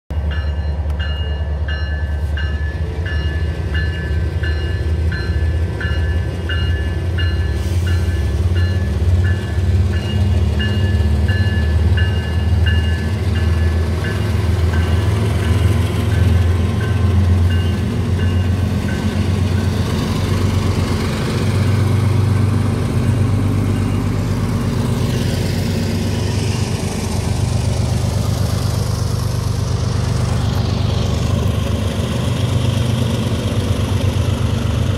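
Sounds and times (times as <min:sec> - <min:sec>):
level-crossing warning bell: 0:00.1 - 0:20.2, 0:23.0 - 0:27.0
diesel locomotive engines rumbling: 0:00.1 - 0:34.9
train rolling past: 0:00.1 - 0:34.9.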